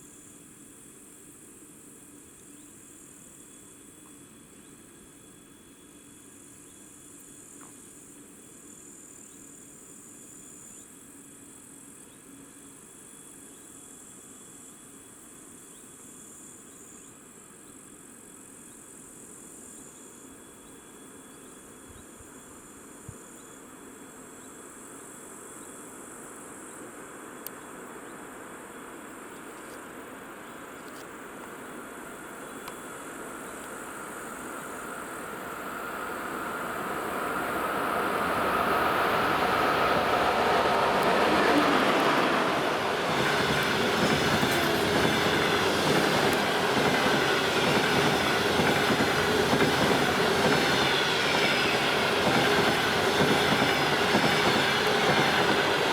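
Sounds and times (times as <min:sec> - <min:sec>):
insects chirping: 0:00.0 - 0:55.9
train rumbling: 0:33.2 - 0:55.9.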